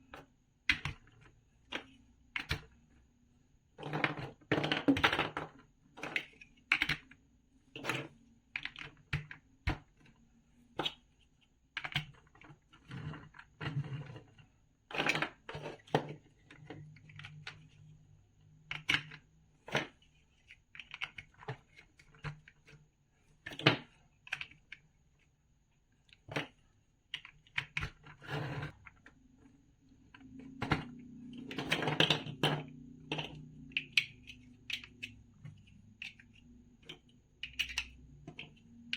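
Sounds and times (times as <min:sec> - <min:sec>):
plastic toy bricks clicking: 0:31.4 - 0:38.9.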